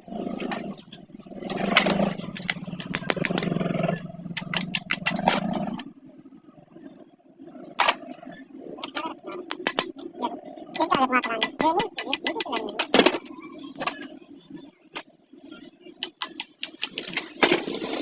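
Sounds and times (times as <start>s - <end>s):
mechanism clicks and knocks: 16.0s - 17.8s.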